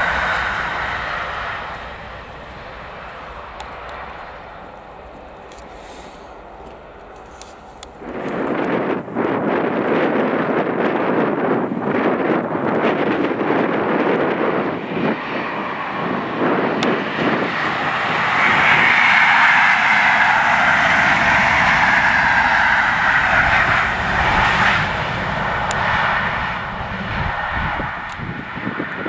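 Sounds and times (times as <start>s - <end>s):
train passing at speed: 0.0s - 29.0s
wind buffeting microphone: 0.0s - 29.0s.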